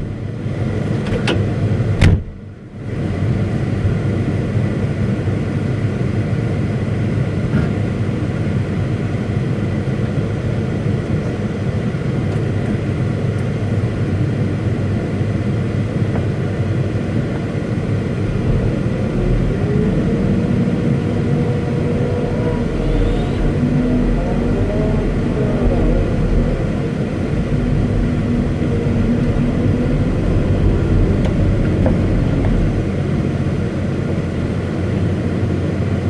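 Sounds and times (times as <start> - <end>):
engine whine: 0.0 - 36.0
excavator diesel engine running: 0.0 - 36.0.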